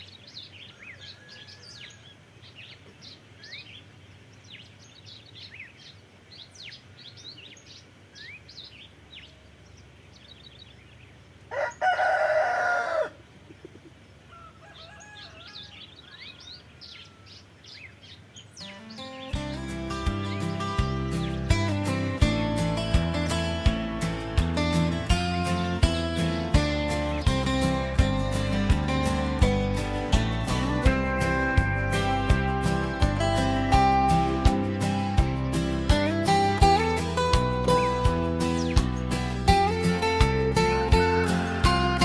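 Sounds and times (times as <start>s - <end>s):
small birds chirping: 0.0s - 11.8s, 13.4s - 42.0s
rooster crowing: 1.0s - 2.0s, 11.5s - 13.2s, 14.3s - 17.4s.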